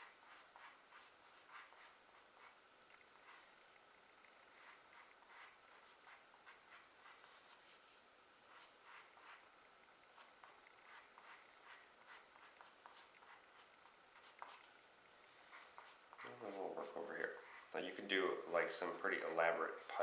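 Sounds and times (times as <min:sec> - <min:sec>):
charcoal pencil scratching on paper: 0:00.0 - 0:02.6, 0:03.2 - 0:03.6, 0:04.5 - 0:07.8, 0:08.5 - 0:09.5, 0:10.2 - 0:14.6, 0:15.5 - 0:20.0.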